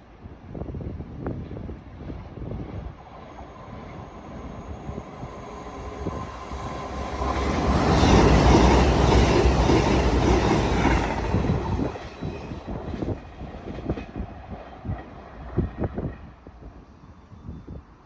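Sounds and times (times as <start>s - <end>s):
train passing: 1.4s - 16.8s
wheels clacking over rail joints: 5.1s - 12.5s.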